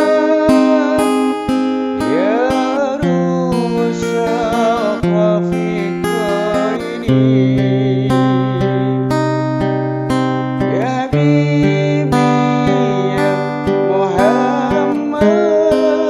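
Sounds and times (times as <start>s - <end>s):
man singing with vibrato: 0.0s - 16.0s
strummed acoustic guitar: 0.0s - 16.0s.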